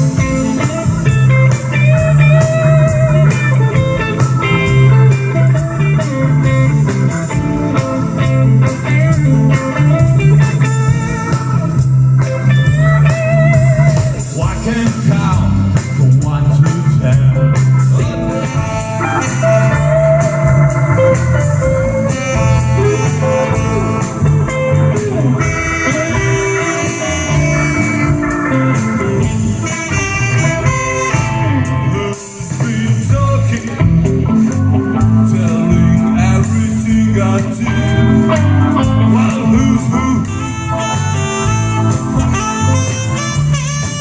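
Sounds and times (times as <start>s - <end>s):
blues band playing: 0.0s - 44.0s
person singing: 13.8s - 29.4s, 30.6s - 42.7s.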